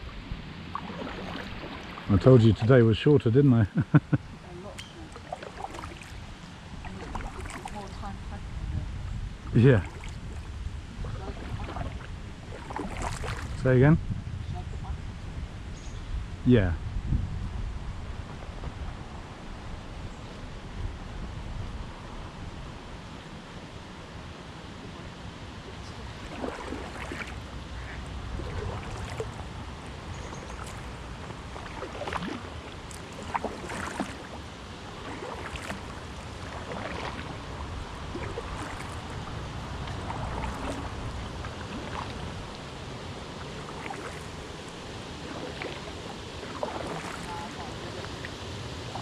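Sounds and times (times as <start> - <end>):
kayak paddles splashing: 0.0 - 13.9, 24.8 - 49.0.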